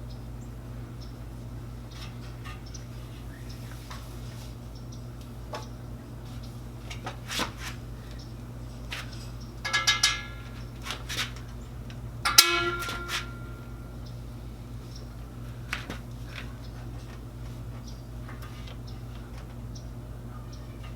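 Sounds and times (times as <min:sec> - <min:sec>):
steady low hum: 0:00.0 - 0:20.9
sharp metallic clang: 0:09.6 - 0:10.6, 0:12.2 - 0:13.9
metal tools clinking: 0:09.6 - 0:11.0, 0:12.2 - 0:13.8.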